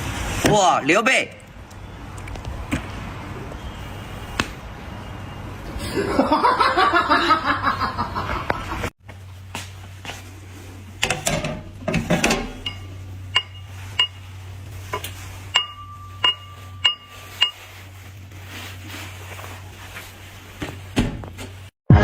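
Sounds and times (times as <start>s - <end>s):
low steady hum: 9.1s - 19.8s
tableware clinking: 11.0s - 14.2s, 14.9s - 17.7s.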